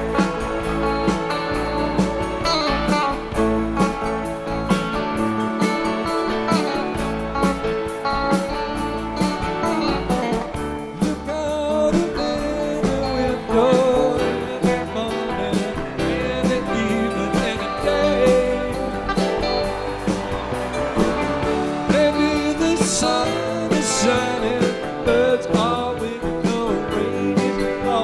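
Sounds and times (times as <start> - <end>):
rock band playing: 0.0 - 28.0.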